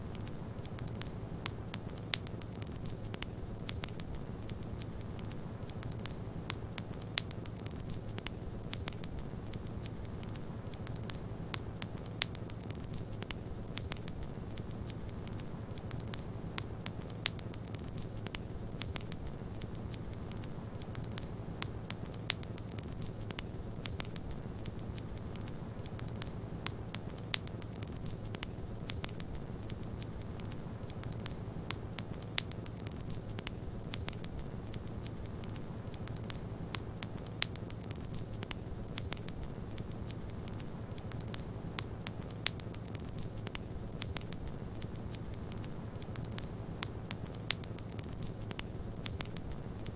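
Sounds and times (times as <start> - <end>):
wood fire crackling and popping: 0.0 - 49.9.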